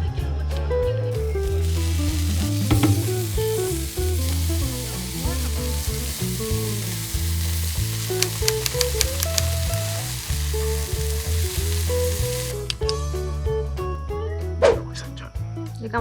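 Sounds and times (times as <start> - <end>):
background music: 0.0 - 16.0
food sizzling on a grill: 1.1 - 12.9.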